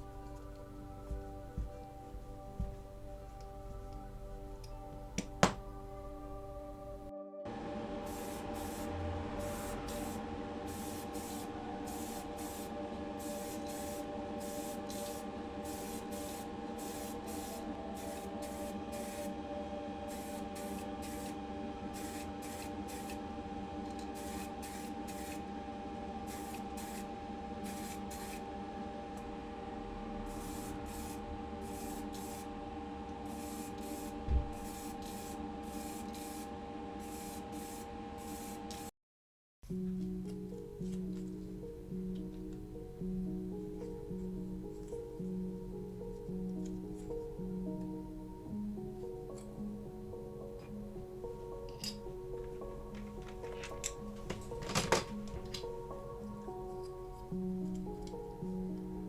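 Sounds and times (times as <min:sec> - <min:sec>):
steady hum: 0:00.0 - 0:38.9
paint spray hissing in bursts: 0:08.0 - 0:19.4, 0:20.0 - 0:23.3, 0:24.0 - 0:25.4, 0:26.2 - 0:28.4, 0:30.3 - 0:32.5, 0:33.3 - 0:38.9.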